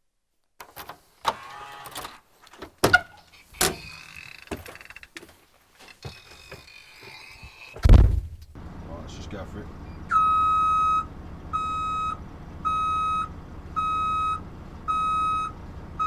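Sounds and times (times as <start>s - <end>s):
knocks and clicks of handling: 0.6s - 8.6s.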